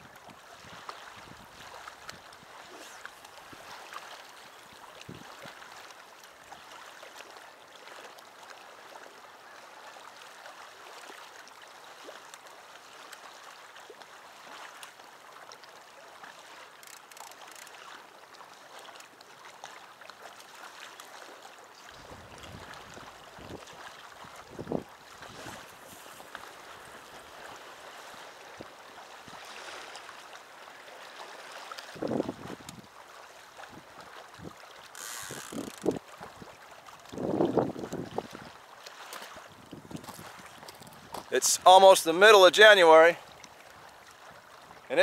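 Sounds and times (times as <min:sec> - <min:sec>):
small waves lapping on shore: 0:00.0 - 0:45.0
faint crackles: 0:02.0 - 0:05.5, 0:16.6 - 0:18.0, 0:34.8 - 0:36.0.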